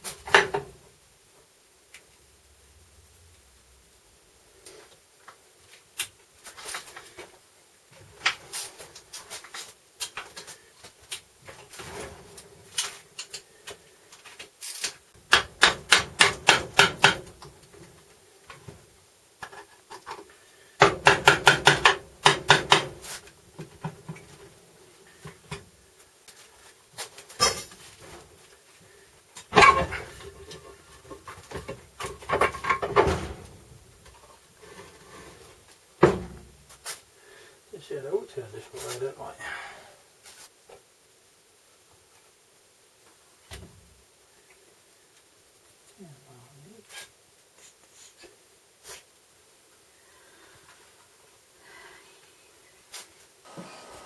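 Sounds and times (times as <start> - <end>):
hand tools knocking and clicking: 14.8 - 17.6, 20.8 - 23.0.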